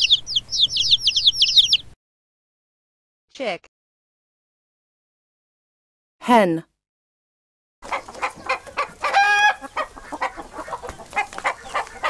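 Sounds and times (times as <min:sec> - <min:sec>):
hen clucking: 0:00.0 - 0:01.9, 0:07.8 - 0:12.0
hen high drawn-out call: 0:07.9 - 0:12.0.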